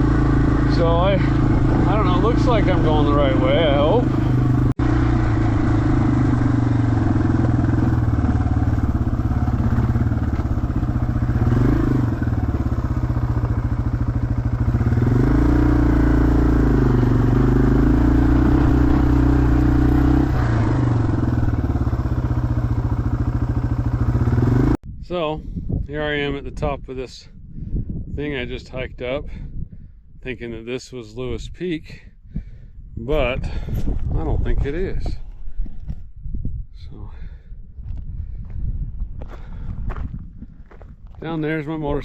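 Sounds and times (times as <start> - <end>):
motorcycle engine revving: 0.0 - 24.8.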